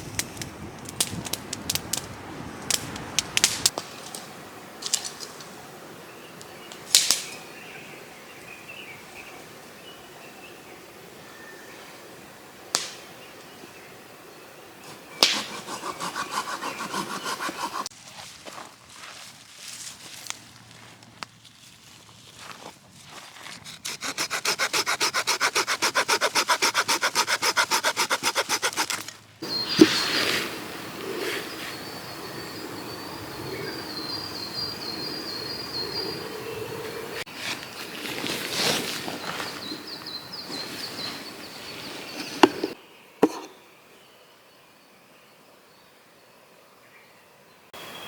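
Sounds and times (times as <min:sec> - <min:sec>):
hand saw cutting wood: 0:15.1 - 0:17.9, 0:23.6 - 0:29.2.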